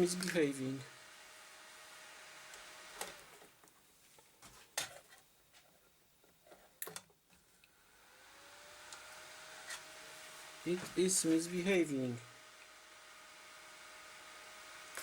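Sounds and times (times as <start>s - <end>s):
computer fan whine: 0.0s - 3.6s, 7.8s - 15.0s.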